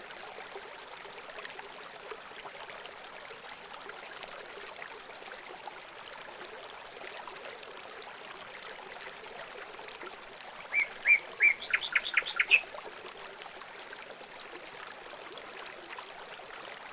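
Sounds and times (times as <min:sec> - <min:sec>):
running water hiss: 0:00.0 - 0:02.4, 0:09.2 - 0:16.9
songbird singing: 0:10.7 - 0:12.7.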